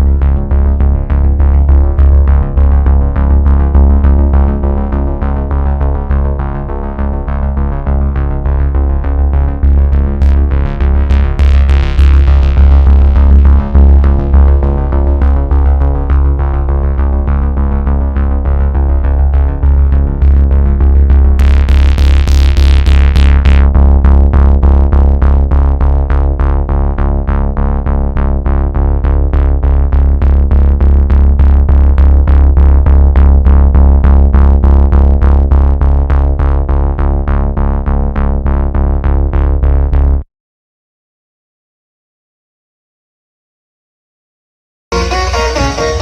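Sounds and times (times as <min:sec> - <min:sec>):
electronic dance music: 0:44.9 - 0:46.0
rushing sweep effect: 0:44.9 - 0:46.0.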